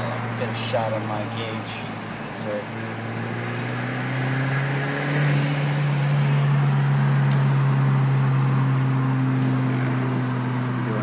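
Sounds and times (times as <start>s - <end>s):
road and wind noise: 0.0s - 11.0s.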